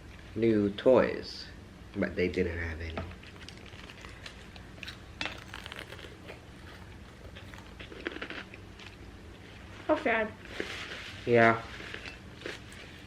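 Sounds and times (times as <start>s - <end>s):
faint low hum: 0.0s - 13.0s
people chewing and crunching food: 2.9s - 13.0s.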